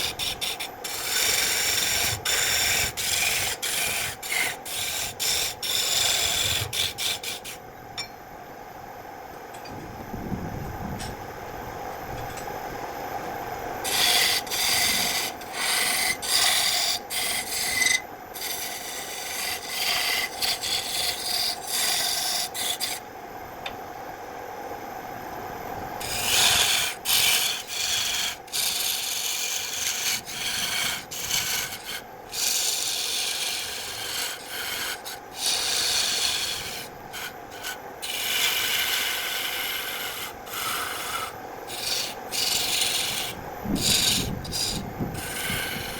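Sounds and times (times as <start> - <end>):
tool scraping wood: 0.0 - 7.6, 13.8 - 23.0, 26.0 - 45.9.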